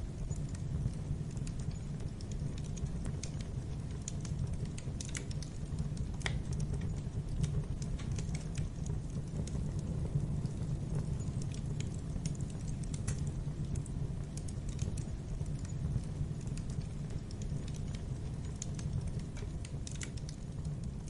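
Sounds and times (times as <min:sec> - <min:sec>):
wood fire burning: 0:00.0 - 0:21.0.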